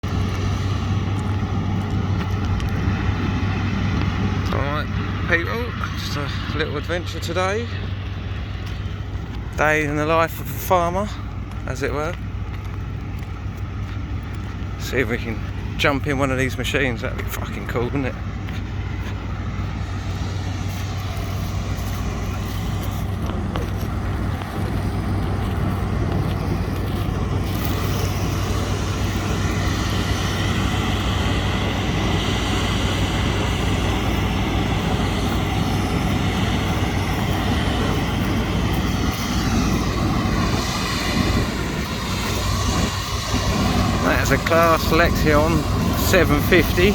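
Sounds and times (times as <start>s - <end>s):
diesel engine running: 0.0s - 46.9s
low hum: 0.0s - 46.9s.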